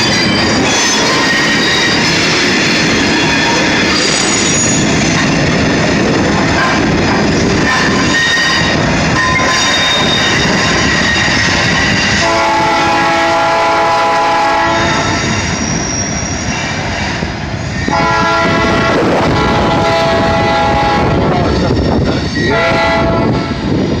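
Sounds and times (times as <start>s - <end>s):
train wheel squeal: 0.0s - 5.6s, 6.4s - 13.3s, 14.3s - 20.1s, 21.0s - 24.0s
freight train rolling past: 0.0s - 24.0s
locomotive air horn blasts: 12.2s - 15.2s, 17.9s - 21.5s, 22.5s - 23.5s.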